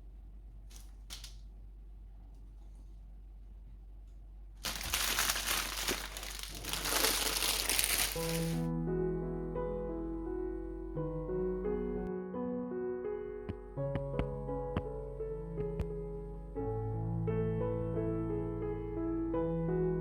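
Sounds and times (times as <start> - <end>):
loud rustling: 4.6 - 8.7
soft piano music: 4.6 - 20.0.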